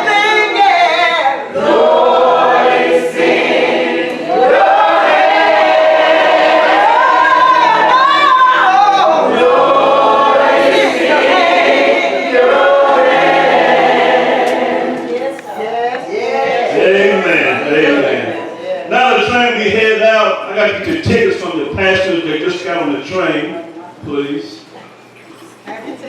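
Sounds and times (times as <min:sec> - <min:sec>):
choir singing gospel: 0:00.0 - 0:19.8.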